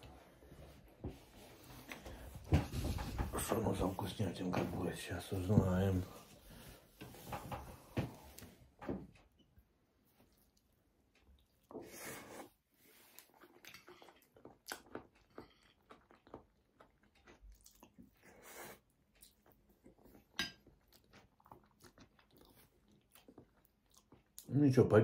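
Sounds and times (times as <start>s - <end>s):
chewing and crunching salad: 10.3s - 24.7s.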